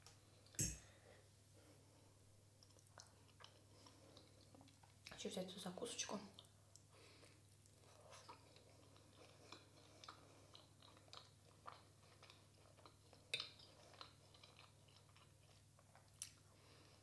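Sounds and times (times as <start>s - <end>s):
chewing and mouth smacks: 2.6s - 5.2s, 6.3s - 16.5s.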